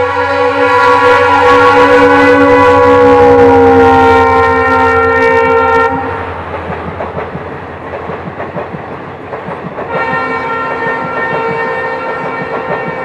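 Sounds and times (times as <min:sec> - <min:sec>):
train horn: 0:00.0 - 0:06.4, 0:09.9 - 0:13.0
train wheels clattering over rail joints: 0:06.3 - 0:13.0.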